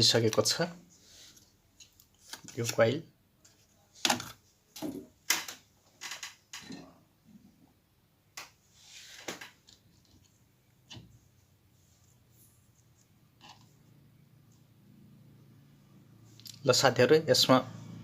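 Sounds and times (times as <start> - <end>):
small parts clicking and knocking: 4.0 - 6.9.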